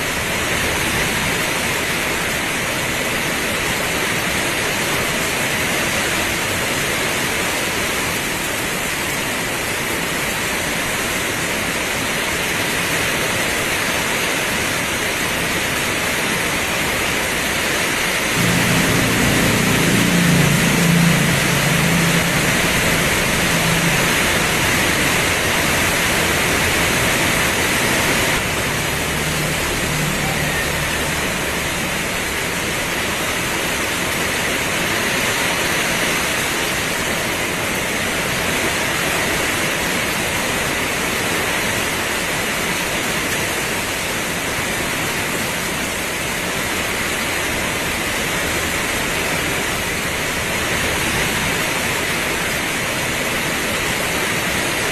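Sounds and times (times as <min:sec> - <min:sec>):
heavy rain pouring: 0:00.0 - 0:54.9
low rumble: 0:18.4 - 0:33.6.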